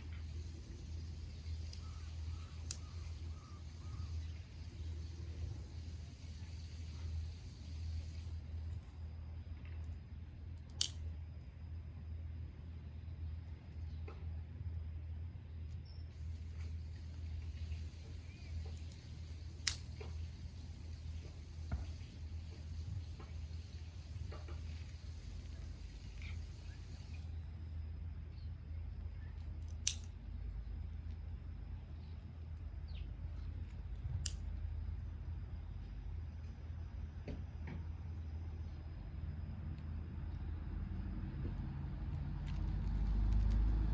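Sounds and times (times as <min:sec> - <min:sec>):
campfire crackling: 0:16.6 - 0:27.4
campfire popping: 0:17.6 - 0:20.2.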